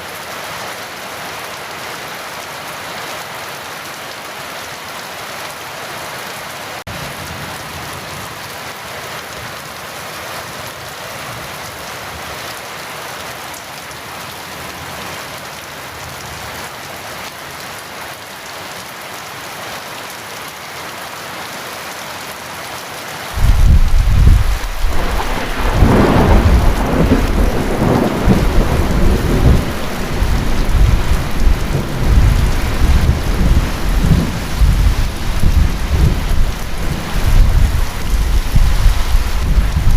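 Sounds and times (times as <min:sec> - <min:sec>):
heavy rain: 0:00.0 - 0:39.9
rolling thunder: 0:23.4 - 0:39.9.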